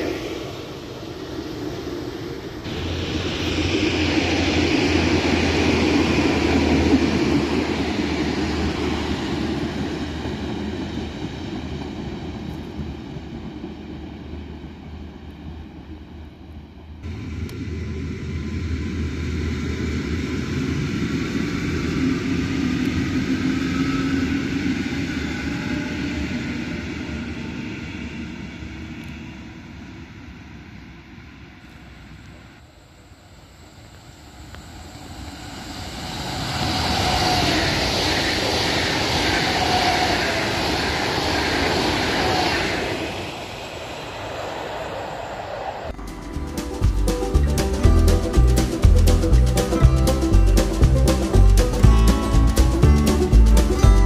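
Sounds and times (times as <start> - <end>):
electric train passing: 0.0 - 54.0
train whine: 0.0 - 54.0.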